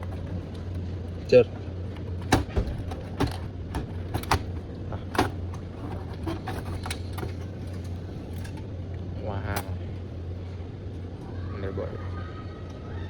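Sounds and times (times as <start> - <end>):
computer parts clicking and knocking: 0.0 - 0.8, 1.9 - 8.6
steady low hum: 0.0 - 13.0.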